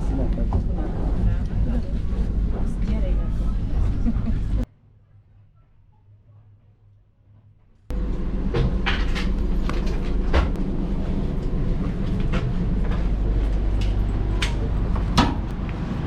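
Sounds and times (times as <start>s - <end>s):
train running rumble: 0.0s - 4.7s, 7.9s - 16.0s.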